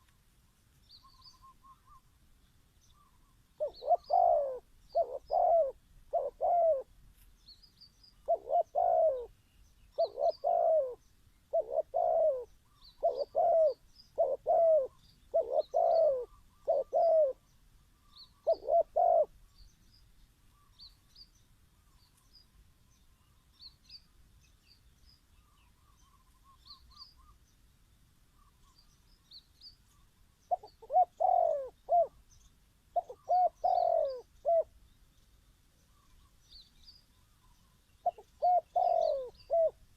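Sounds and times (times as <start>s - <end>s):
small birds chirping faintly: 0.0s - 39.9s
dove cooing: 3.0s - 6.9s, 8.2s - 9.4s, 10.0s - 17.5s, 18.1s - 19.4s, 30.5s - 32.2s, 32.9s - 34.8s, 38.0s - 39.9s.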